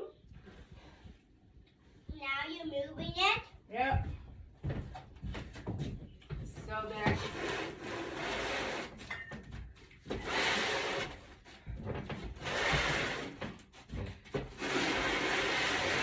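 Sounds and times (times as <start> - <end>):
refrigerator scraping across floor: 6.9 - 9.2, 10.1 - 16.0.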